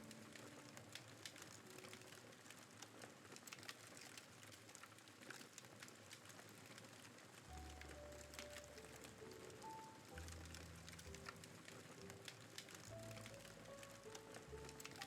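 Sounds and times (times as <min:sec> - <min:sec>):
soft background music: 0:00.0 - 0:02.8, 0:07.3 - 0:15.0
campfire crackling and popping: 0:00.0 - 0:15.0.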